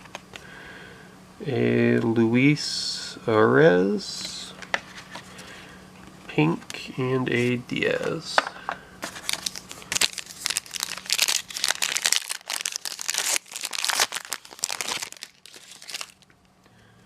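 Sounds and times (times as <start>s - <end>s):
plastic wrapper crinkling and tearing: 9.0s - 16.4s.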